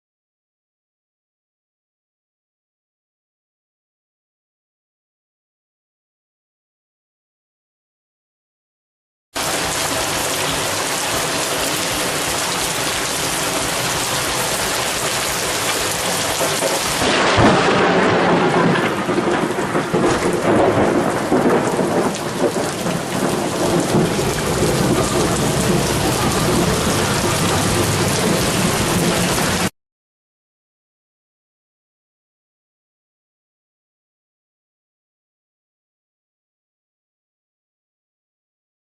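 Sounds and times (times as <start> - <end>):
heavy rain: 9.4 - 29.7
rolling thunder: 9.4 - 29.7
sharp thunder crack: 11.2 - 29.7.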